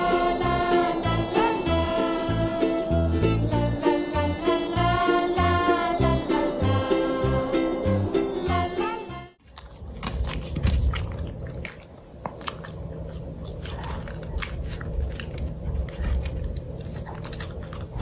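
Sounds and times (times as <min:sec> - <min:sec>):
dog gnawing on wood: 0:09.4 - 0:18.0.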